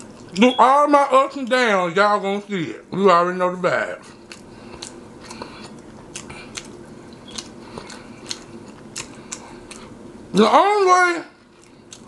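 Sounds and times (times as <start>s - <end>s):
man chewing with mouth closed: 0.0s - 0.4s, 4.0s - 10.2s, 11.4s - 12.0s.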